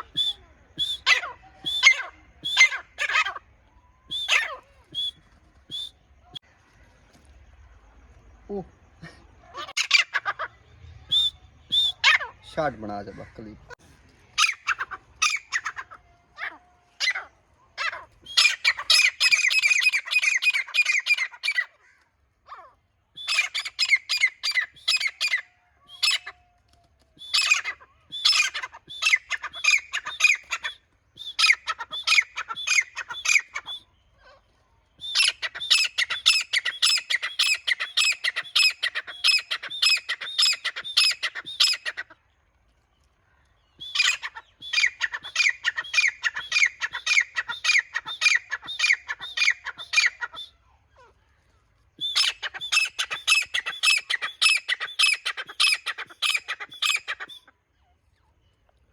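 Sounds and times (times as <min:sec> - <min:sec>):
francolin calling: 0:00.0 - 0:03.4, 0:04.1 - 0:06.4, 0:11.1 - 0:13.8, 0:14.4 - 0:21.8, 0:23.2 - 0:26.4, 0:27.2 - 0:33.9, 0:35.0 - 0:42.1, 0:43.8 - 0:50.5, 0:52.0 - 0:57.5.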